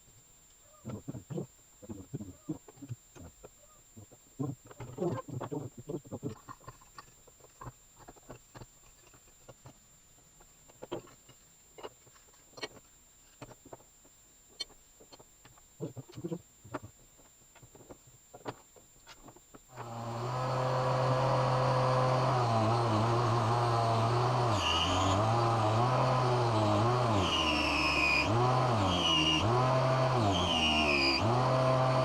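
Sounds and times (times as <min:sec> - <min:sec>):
power tool motor running: 0:19.7 - 0:32.0.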